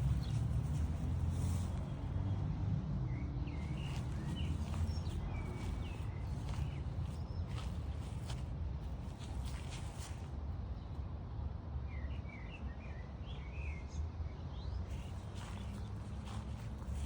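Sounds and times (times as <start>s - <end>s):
steady low rumble: 3.5s - 10.6s.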